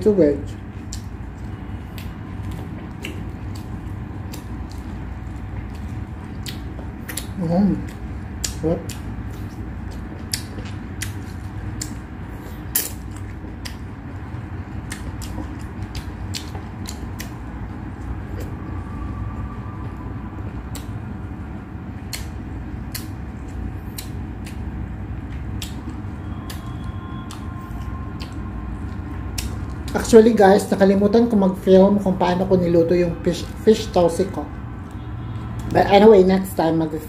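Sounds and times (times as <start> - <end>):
steady low hum: 0.0 - 37.0
wet chewing and lip smacks: 0.5 - 30.1.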